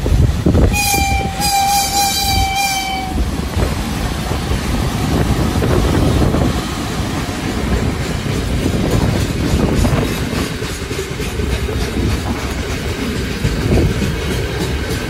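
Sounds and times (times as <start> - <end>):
freight train rumbling past: 0.0 - 15.0
locomotive horn: 0.7 - 3.2.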